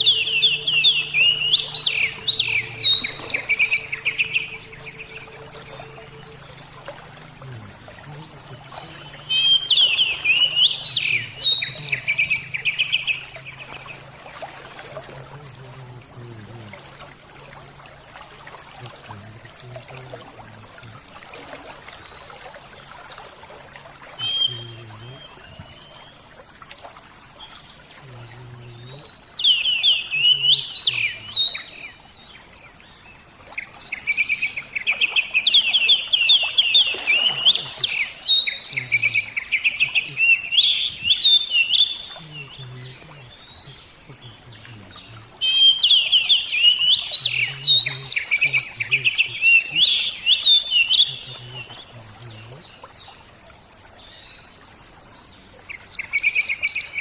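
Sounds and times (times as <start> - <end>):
bird singing rapid phrases: 0.0 - 14.3, 23.8 - 26.1, 28.0 - 32.0, 33.4 - 52.8, 55.7 - 57.0
trickling water: 0.0 - 57.0.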